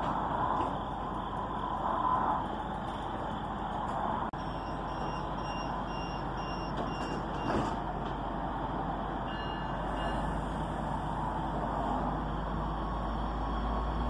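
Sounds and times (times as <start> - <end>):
diesel railcar engine hum: 0.0 - 14.0
short electronic warning beeps: 4.4 - 7.5, 9.3 - 10.4
long beep tone: 4.4 - 7.6, 9.3 - 10.5.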